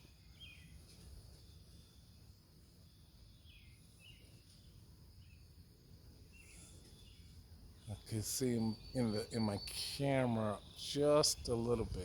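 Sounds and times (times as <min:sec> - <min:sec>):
faint bird chirps: 0:00.0 - 0:12.0
faint insect buzz: 0:00.0 - 0:12.0
wind rumble on microphone: 0:11.3 - 0:12.0.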